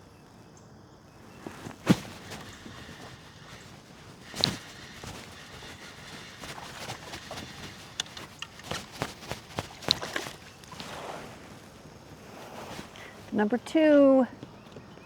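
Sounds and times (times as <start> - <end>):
fishing gear clicking and knocking: 1.8 - 11.0.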